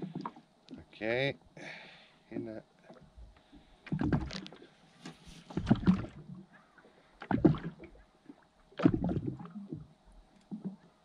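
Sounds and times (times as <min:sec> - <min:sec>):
water slapping against boat hull: 0:03.8 - 0:06.4, 0:07.2 - 0:07.9, 0:08.8 - 0:09.8.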